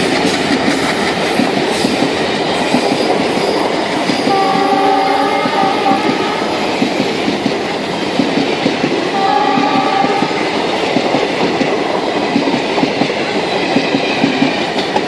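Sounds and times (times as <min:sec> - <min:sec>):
train rumble and wheel clatter: 0:00.0 - 0:15.0
train horn blast: 0:04.2 - 0:06.8, 0:09.1 - 0:10.6.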